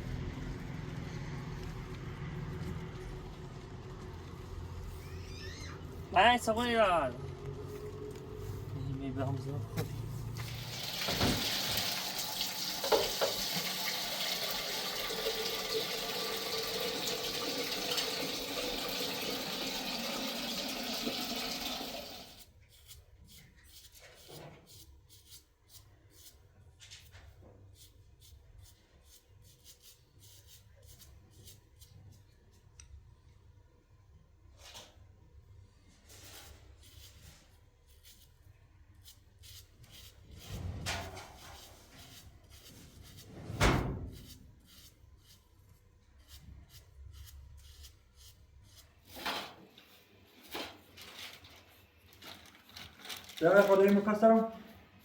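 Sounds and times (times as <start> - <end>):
small objects rustling and clicking: 49.8 - 54.1.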